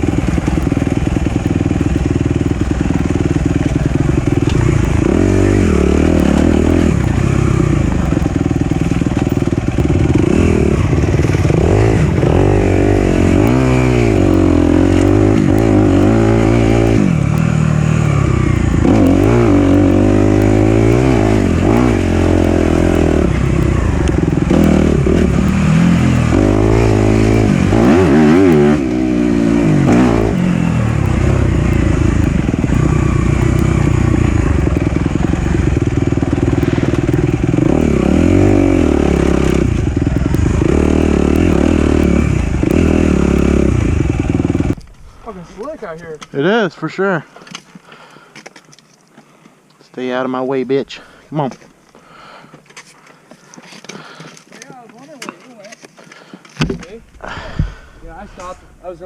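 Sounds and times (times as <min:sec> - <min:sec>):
dirt bike engine revving: 0:00.0 - 0:47.1, 0:57.2 - 0:59.0.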